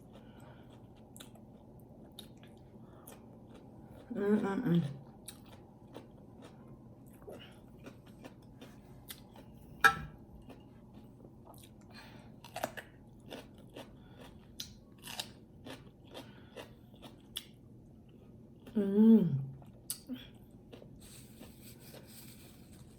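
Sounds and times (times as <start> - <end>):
person chewing food: 0.0 - 4.1, 4.8 - 18.8, 19.5 - 22.9
small food crunches: 12.4 - 17.6.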